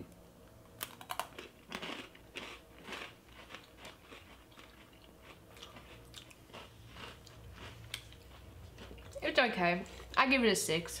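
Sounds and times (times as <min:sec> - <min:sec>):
biscuit sticks crunching: 0:00.8 - 0:09.3.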